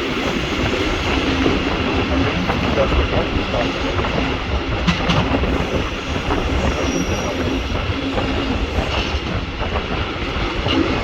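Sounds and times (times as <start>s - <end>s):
train wheels rumbling on rails: 0.0s - 11.0s
high wheel squeal: 5.6s - 7.8s.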